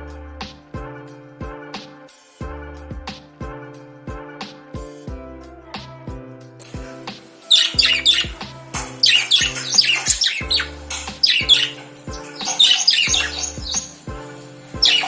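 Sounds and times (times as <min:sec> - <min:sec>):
background music with steady beat: 0:00.0 - 0:15.0
lovebirds squawking and chirping: 0:06.6 - 0:15.0.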